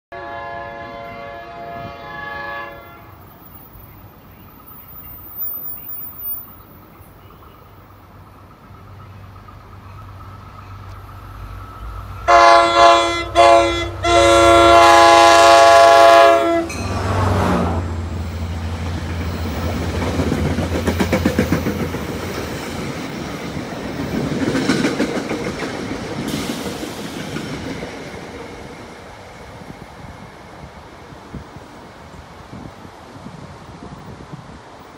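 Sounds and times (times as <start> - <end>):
locomotive air horn blasts: 0.1 - 3.3, 12.2 - 17.9
train wheels clickety-clack: 18.8 - 30.2.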